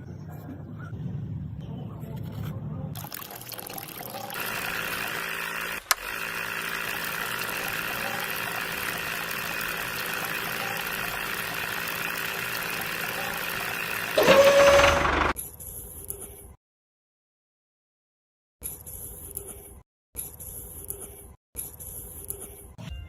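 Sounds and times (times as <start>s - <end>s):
small motor running: 3.0s - 15.4s.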